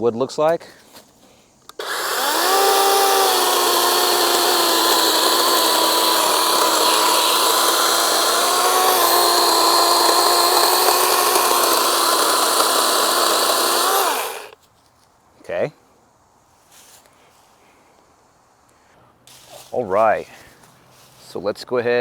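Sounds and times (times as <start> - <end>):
electric chainsaw motor whine: 1.7 - 14.6
chain rasping through wood: 1.8 - 14.6.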